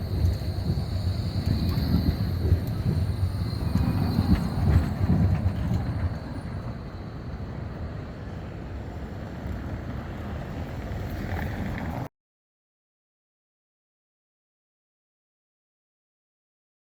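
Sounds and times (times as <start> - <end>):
tram rumbling: 0.0 - 12.1.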